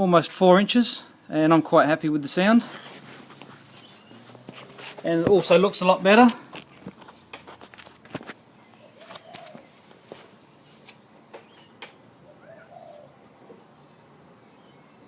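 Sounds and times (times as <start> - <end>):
faint bird chirps: 8.6 - 13.7.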